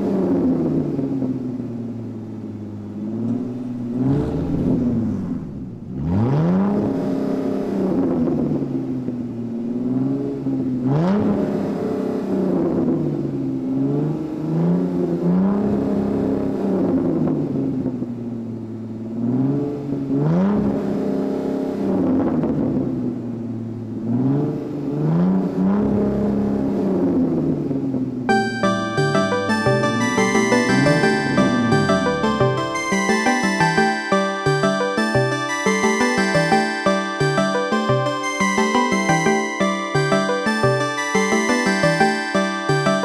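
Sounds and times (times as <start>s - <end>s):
car engine revving: 0.0s - 18.0s, 19.0s - 43.0s.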